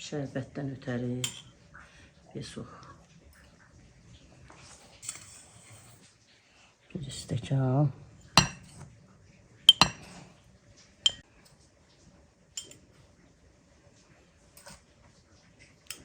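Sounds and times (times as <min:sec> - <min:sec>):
glass tumbler clinking: 0:08.3 - 0:08.8, 0:09.7 - 0:10.2.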